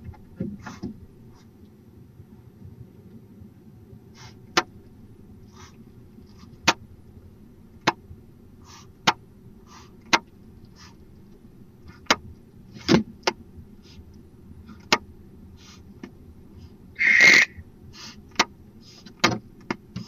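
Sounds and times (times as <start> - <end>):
owl sharp clicks: 17.0 - 17.6
owl hissing calls: 17.0 - 18.2.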